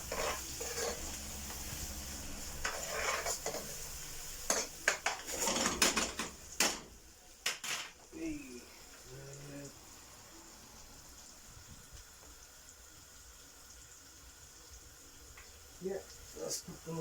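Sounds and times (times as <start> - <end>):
utensil stirring and scraping: 0.0 - 6.0
onions sizzling in a pan: 0.0 - 17.0.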